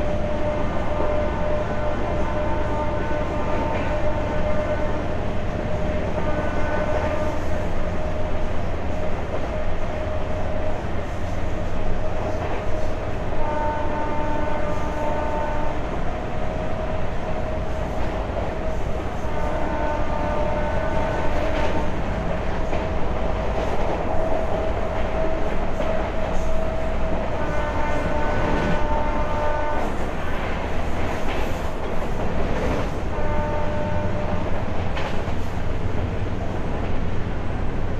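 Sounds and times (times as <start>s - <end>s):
train horn: 0.0s - 8.4s, 12.4s - 16.1s, 18.6s - 22.0s, 24.1s - 30.4s, 32.6s - 35.2s
train rumbling on track: 0.0s - 37.9s.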